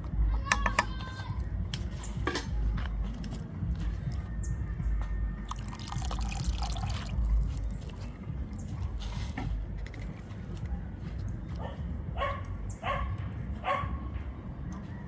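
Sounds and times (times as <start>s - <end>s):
liquid bubbling in a pot: 5.4s - 8.1s.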